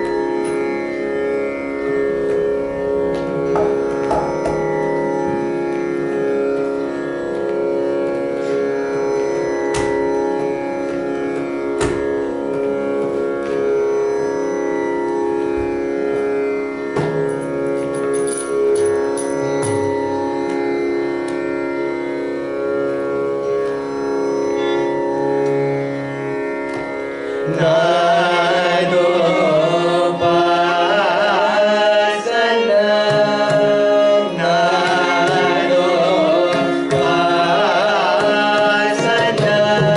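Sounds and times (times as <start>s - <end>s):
slow melodic line: 0.0s - 38.5s
person singing ornamented notes: 27.5s - 39.9s.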